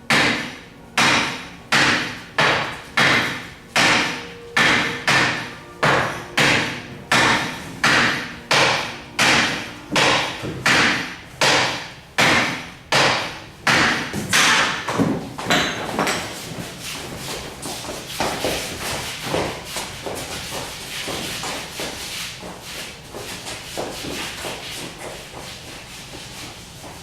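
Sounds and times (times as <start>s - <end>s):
sharp ringing knocks: 0.1s - 16.4s.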